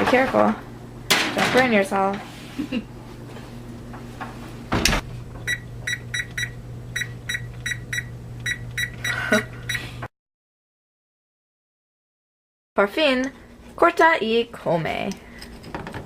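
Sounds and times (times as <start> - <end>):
oven door shutting: 4.7 - 5.5.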